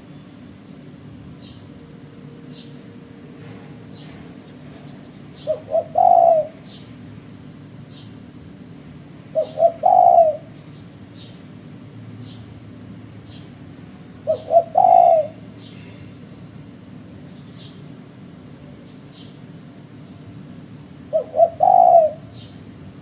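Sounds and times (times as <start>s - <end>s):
dove cooing: 2.6s - 7.0s, 9.2s - 10.6s, 14.2s - 15.6s, 21.0s - 22.5s
small bird chirping: 7.9s - 8.2s.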